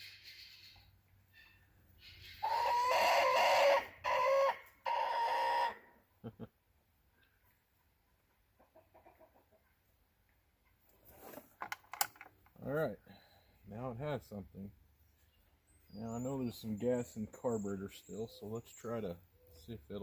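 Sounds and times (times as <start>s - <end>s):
rooster crowing: 2.4s - 5.8s.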